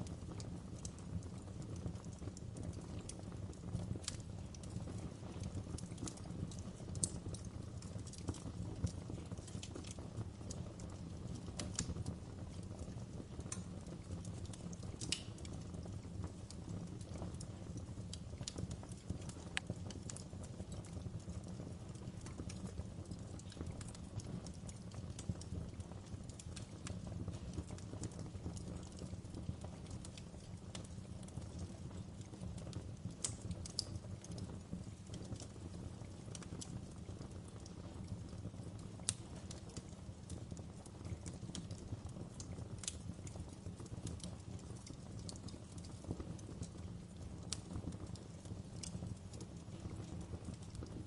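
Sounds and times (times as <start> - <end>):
fire crackling in a fireplace: 0.0 - 51.0.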